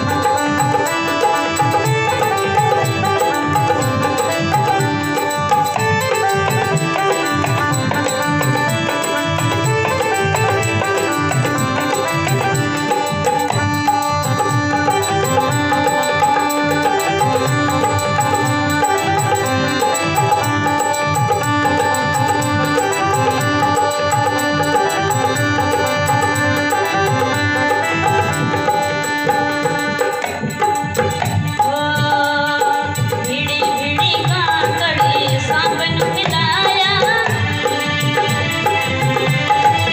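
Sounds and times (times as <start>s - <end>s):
melodic instrument line: 0.0s - 32.5s
hand drum rhythm: 0.0s - 39.9s.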